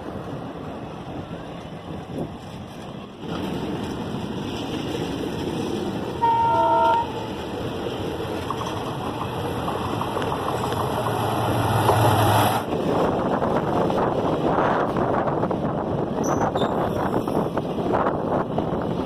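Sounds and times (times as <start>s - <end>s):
diesel locomotive engine hum: 0.0s - 19.0s
train coaches rolling past: 0.0s - 19.0s
locomotive horn blast: 6.2s - 7.2s.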